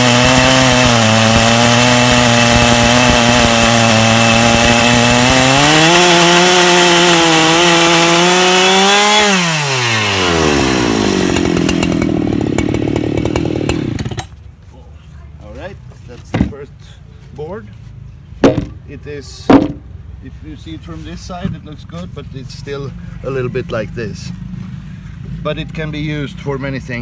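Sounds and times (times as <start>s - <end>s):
chainsaw idling: 0.0s - 14.3s
chainsaw cutting log: 0.0s - 14.4s.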